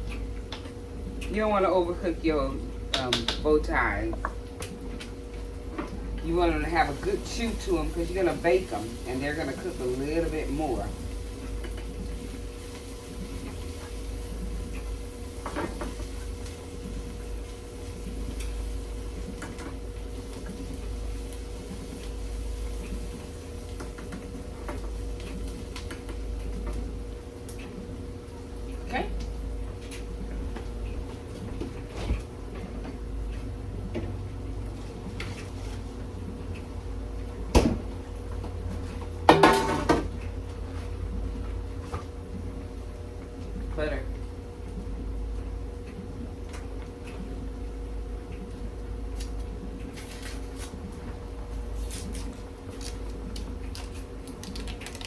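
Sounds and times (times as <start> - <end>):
steady low hum: 0.0 - 55.0
metallic cookware clattering: 39.3 - 40.1.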